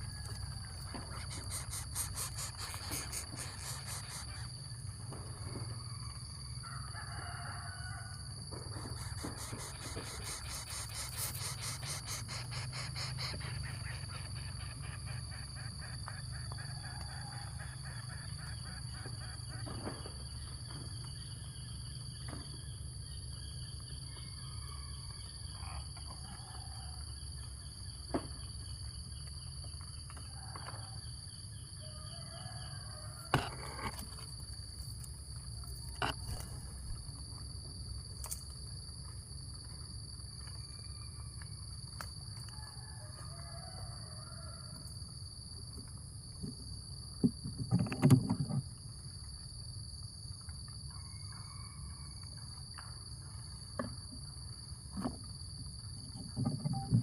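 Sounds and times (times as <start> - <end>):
faint calls: 0.0 - 4.7, 8.7 - 20.0
insects chirring chorus: 0.0 - 57.0.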